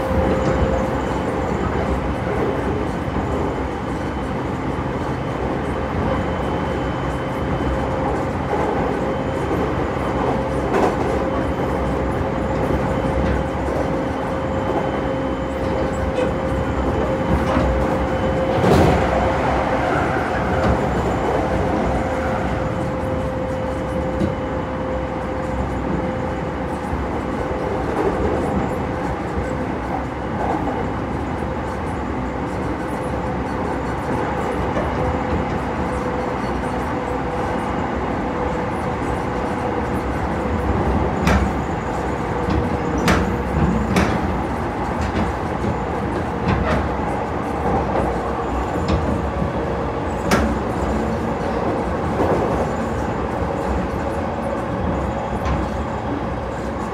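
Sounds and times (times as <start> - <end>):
train running rumble: 0.0 - 56.9
wheels clacking on rail joints: 32.4 - 56.9.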